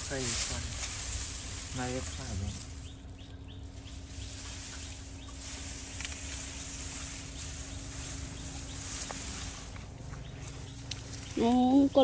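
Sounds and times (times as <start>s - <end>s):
steady high hiss: 0.0s - 3.1s, 3.7s - 10.1s
low hum: 0.0s - 12.0s
faint bird chirps: 1.8s - 12.0s.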